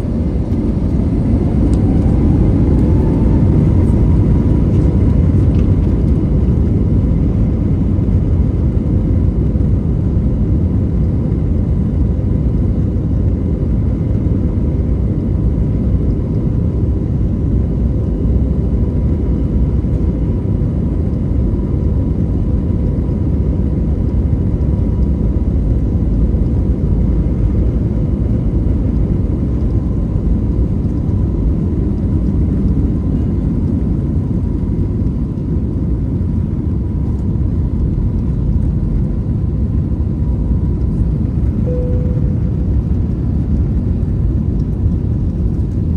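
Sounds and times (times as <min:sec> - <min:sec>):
airflow noise: 0:00.0 - 0:06.0
jet engines deep rumble: 0:00.0 - 0:45.9
faint steady whine: 0:24.6 - 0:45.9.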